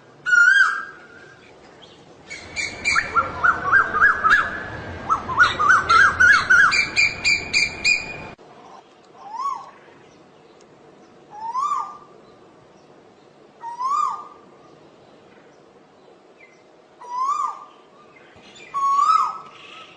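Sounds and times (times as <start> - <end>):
bird whistled calls: 2.3 - 8.4, 17.0 - 17.7, 18.4 - 19.9.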